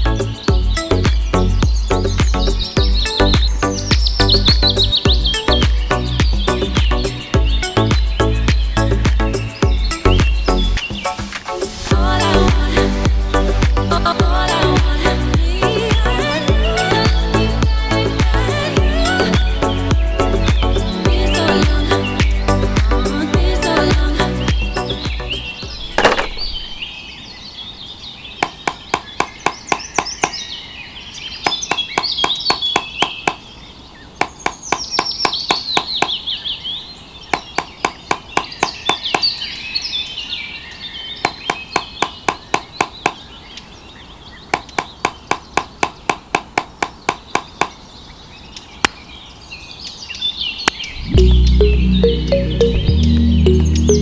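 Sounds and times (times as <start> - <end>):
birds chirping: 0.0 - 45.6.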